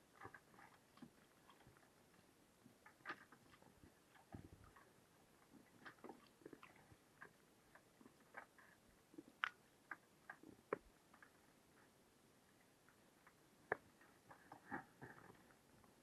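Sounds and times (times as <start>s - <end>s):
small clicks and taps: 9.2s - 11.4s.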